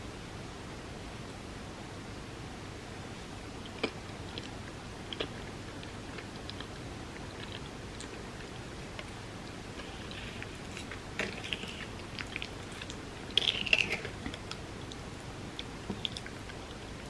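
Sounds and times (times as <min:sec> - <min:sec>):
wet mouth chewing sounds: 0:03.6 - 0:17.0.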